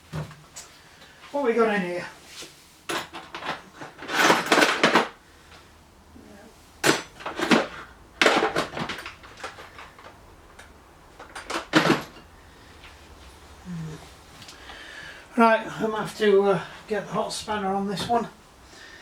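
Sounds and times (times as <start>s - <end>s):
metal spanners clinking: 2.9s - 5.2s.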